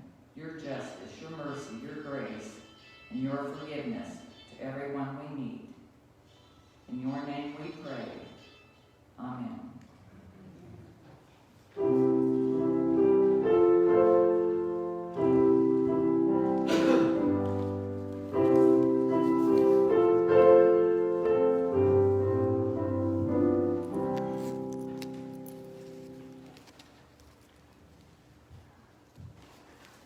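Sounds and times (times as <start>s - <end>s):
piano playing slow chords: 11.8s - 26.8s.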